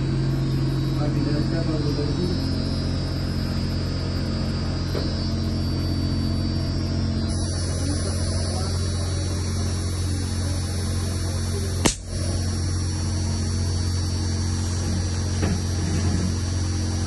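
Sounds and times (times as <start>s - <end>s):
electrical mains hum: 0.0s - 17.0s
sharp click: 11.8s - 12.1s.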